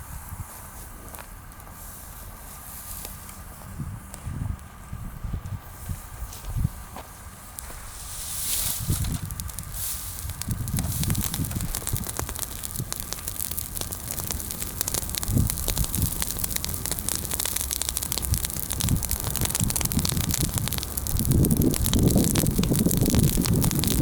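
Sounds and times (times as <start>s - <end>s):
bonfire crackling and popping: 7.5s - 24.0s.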